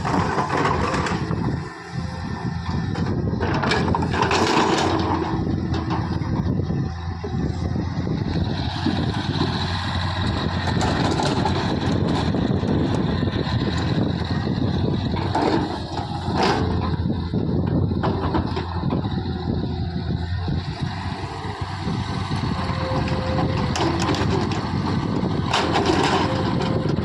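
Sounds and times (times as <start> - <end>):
diesel engines running: 0.0 - 27.0
bursts of clatter: 3.4 - 6.2.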